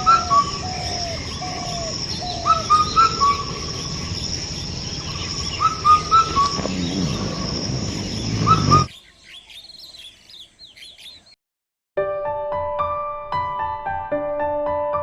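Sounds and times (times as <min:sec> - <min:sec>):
high-pitched drone: 0:00.0 - 0:08.9
birds calling: 0:00.0 - 0:11.4
birds twittering chirps: 0:00.0 - 0:11.4.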